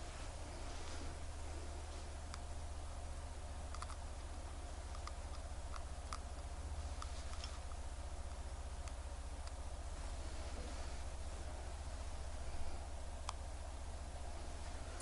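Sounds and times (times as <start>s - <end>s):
low hum: 0.0s - 15.0s
light clicks and taps: 3.7s - 9.6s.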